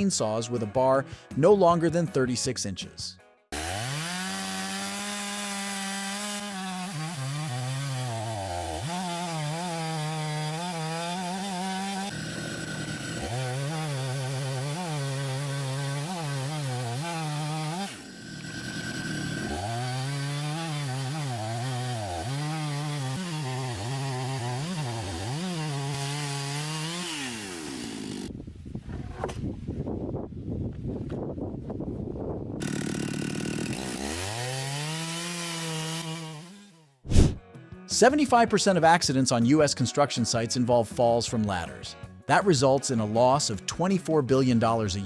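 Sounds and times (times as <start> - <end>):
chainsaw cutting through log: 3.5 - 28.4, 32.6 - 37.4.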